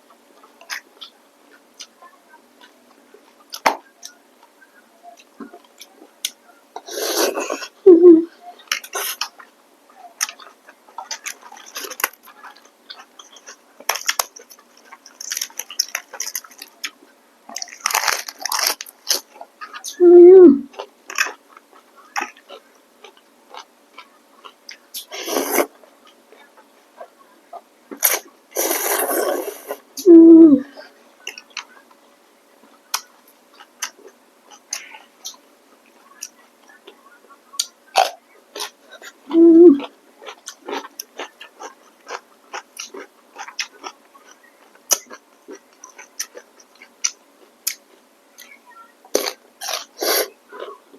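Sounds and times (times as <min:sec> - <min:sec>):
chewing noodles: 0:08.6 - 0:19.9, 0:37.6 - 0:48.5.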